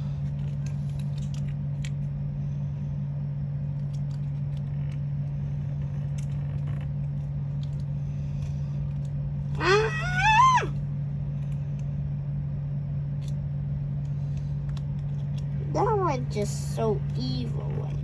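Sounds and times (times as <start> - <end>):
steady low hum: 0.0 - 18.0
person crying out: 9.6 - 10.8.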